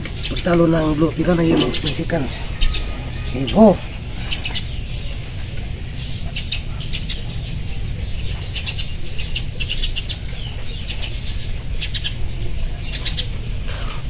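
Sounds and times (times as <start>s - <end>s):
low background rumble: 0.0s - 14.0s
small birds chirping: 0.0s - 14.0s.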